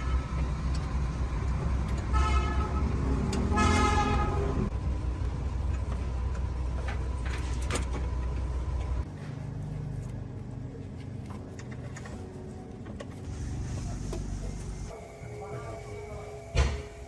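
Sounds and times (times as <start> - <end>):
horn toots: 2.1 - 4.7.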